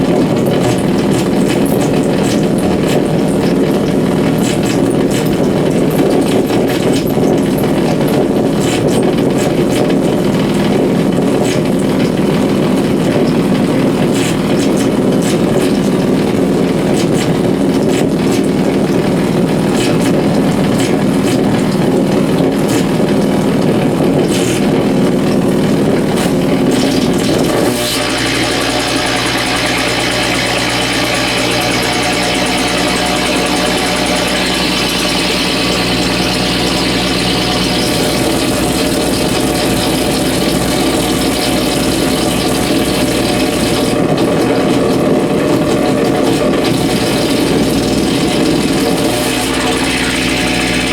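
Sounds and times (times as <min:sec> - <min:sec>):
crackling electrical buzz: 0:09.7 - 0:50.9
steady buzz with even tones: 0:26.8 - 0:44.0.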